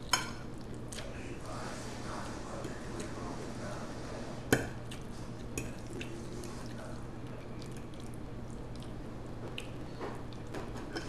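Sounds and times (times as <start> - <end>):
faint low hum: 0.0 - 11.0
wet chewing of spaghetti: 4.8 - 11.0.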